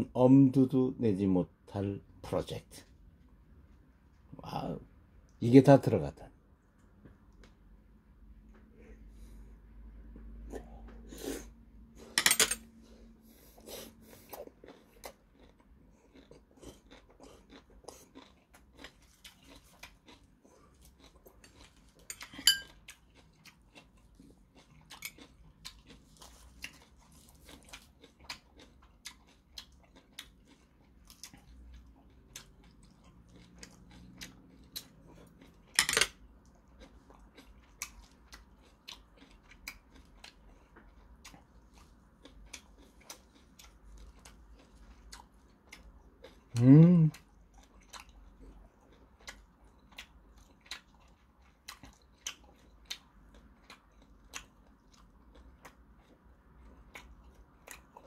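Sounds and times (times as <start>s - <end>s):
chopsticks clinking on dish: 12.2s - 12.6s, 22.1s - 22.8s, 35.8s - 36.1s
man chewing and mouth smacking: 12.9s - 58.0s.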